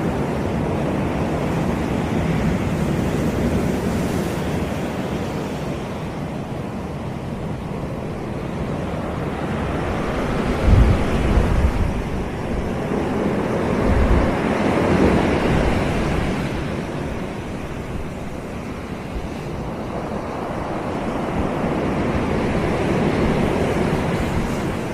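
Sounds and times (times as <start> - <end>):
sea waves washing onto beach: 0.0 - 24.9
wind buffeting microphone: 0.0 - 24.9.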